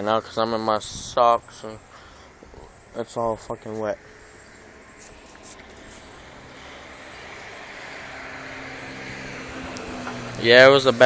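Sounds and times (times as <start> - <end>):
vehicle on wet street: 4.6 - 11.0.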